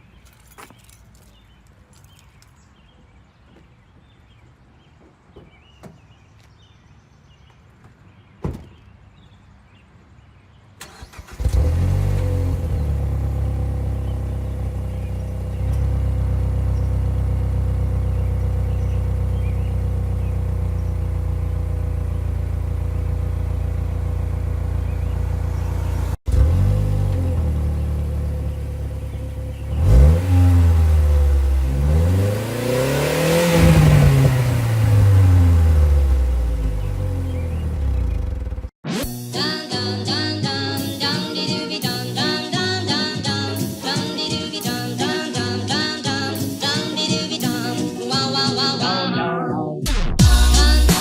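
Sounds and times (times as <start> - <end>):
car engine starting and idling: 10.8 - 38.8.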